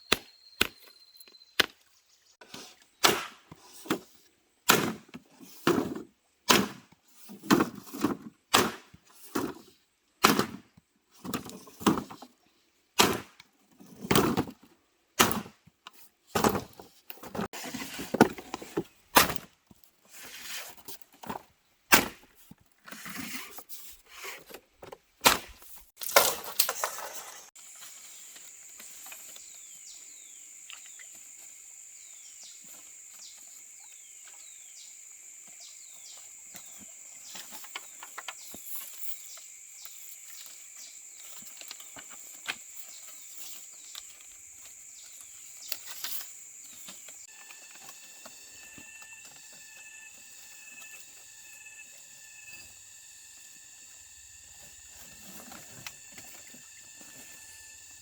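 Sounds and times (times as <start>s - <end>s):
high insect drone: 26.9s - 58.0s.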